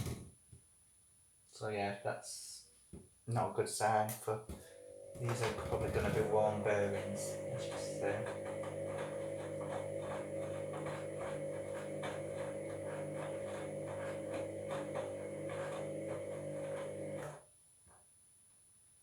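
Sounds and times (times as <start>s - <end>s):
washing machine drum grinding: 4.6s - 17.3s
washing machine motor hum: 4.6s - 17.4s.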